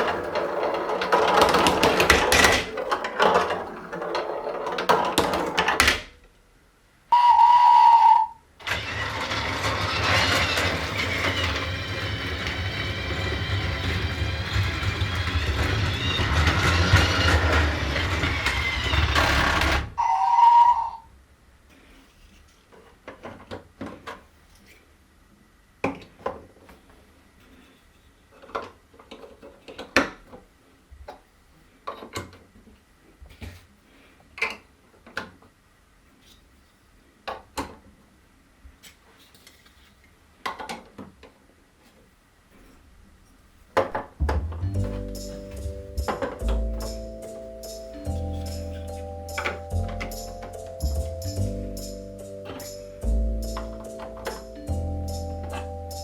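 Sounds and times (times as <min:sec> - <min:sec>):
low hum: 0:44.0 - 0:56.0.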